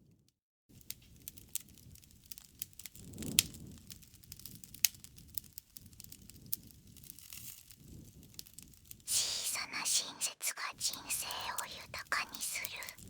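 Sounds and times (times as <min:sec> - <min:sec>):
campfire crackling and popping: 0:00.8 - 0:08.9
low rumble of flames: 0:00.8 - 0:09.0.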